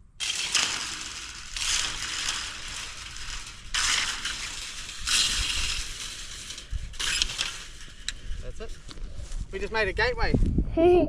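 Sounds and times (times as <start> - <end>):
gravel crunching: 0.0 - 10.5.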